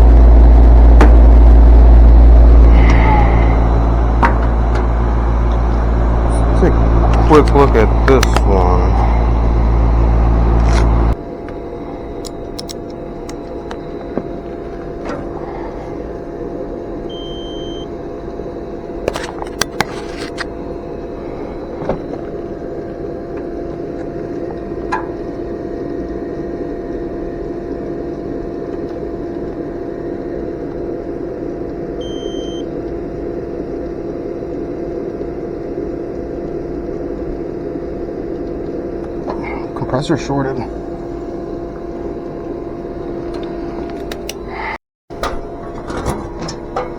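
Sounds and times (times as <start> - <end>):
hvac equipment humming: 0.0 - 46.9
sharp tool clicks: 12.2 - 13.4.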